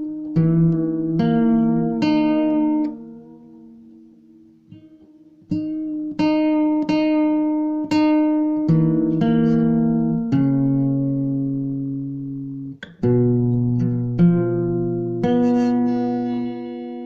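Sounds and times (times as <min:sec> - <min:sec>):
guitar chords plucked: 0:00.0 - 0:17.0.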